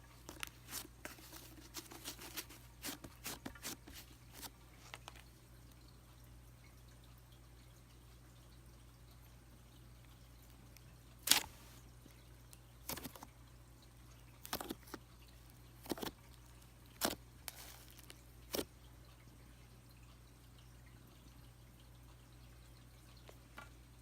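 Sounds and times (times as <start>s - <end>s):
slime squelching and popping: 11.2s - 11.7s, 15.8s - 16.2s, 16.9s - 18.7s.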